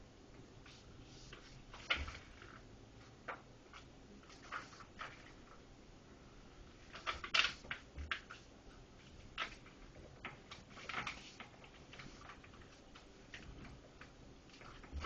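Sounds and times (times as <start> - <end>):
paper being folded and creased: 3.7 - 5.4, 9.4 - 12.8.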